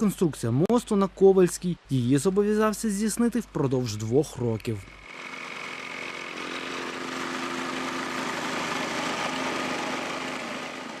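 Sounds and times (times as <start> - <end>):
engine humming: 4.6 - 11.0.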